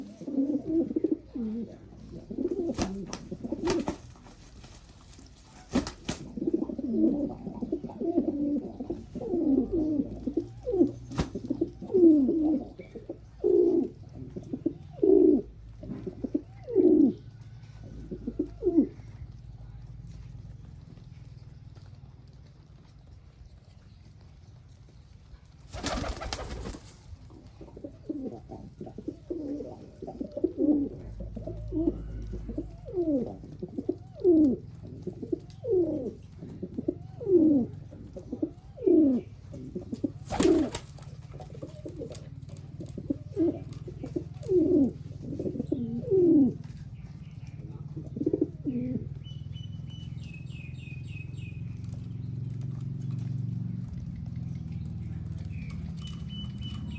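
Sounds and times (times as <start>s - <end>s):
pigeons cooing: 0.0s - 19.4s, 25.7s - 49.3s
loud rustling bursts: 2.7s - 6.3s.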